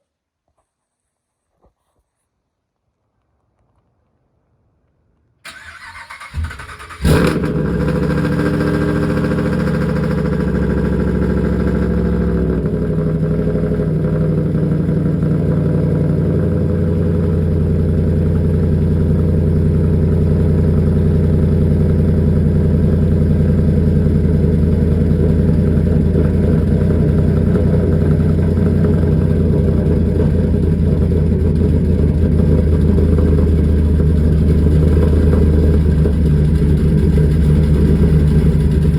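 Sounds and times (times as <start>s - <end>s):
truck engine cranking: 5.5s - 8.6s
truck engine idling: 5.5s - 38.9s.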